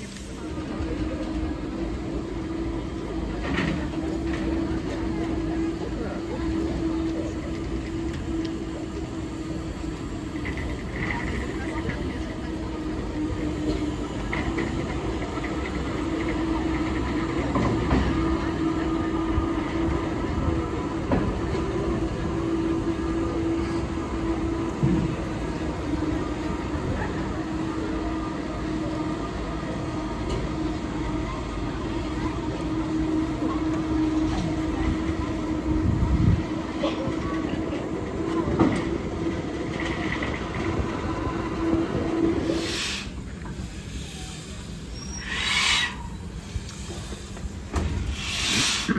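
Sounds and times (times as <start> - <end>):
train rumbling on track: 0.0 - 48.9.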